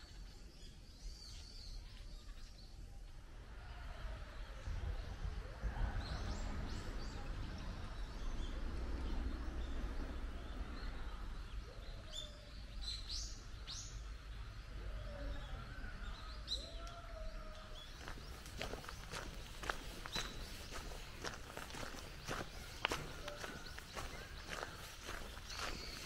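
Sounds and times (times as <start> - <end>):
faint wavering bird calls: 14.8 - 26.0.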